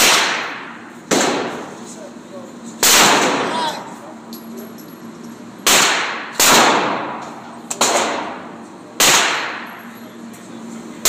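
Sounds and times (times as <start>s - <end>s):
gunshots: 0.0s - 1.6s, 2.8s - 3.5s, 5.6s - 7.2s, 7.8s - 8.4s, 9.0s - 9.7s.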